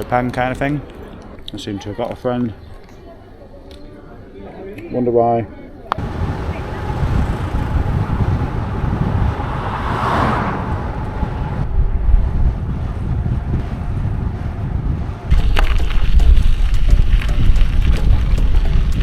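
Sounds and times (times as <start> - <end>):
wind rumbling on microphone: 5.9 - 19.0.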